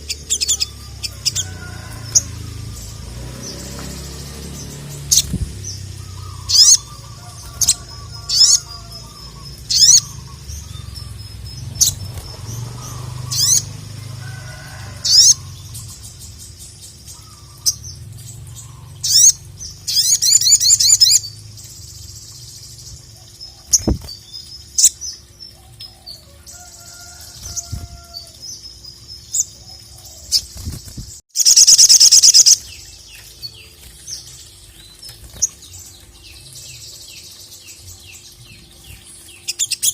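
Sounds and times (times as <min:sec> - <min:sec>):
bird rapid trill: 0:00.0 - 0:21.4, 0:30.3 - 0:34.5
bird sharp high calls: 0:06.0 - 0:11.2.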